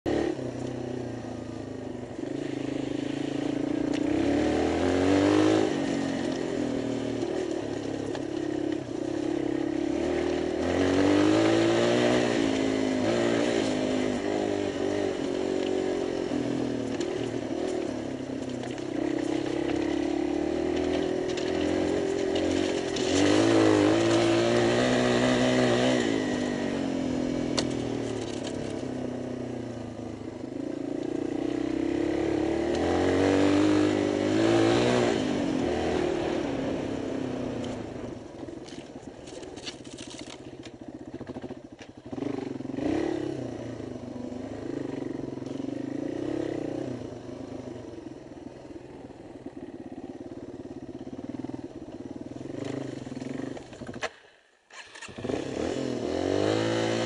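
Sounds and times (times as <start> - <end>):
motorcycle engine running: 0.1 - 57.0.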